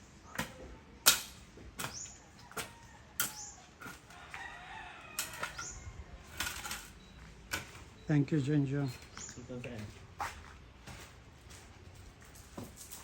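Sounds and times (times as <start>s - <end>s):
blade chopping tree branches: 0.3s - 4.0s.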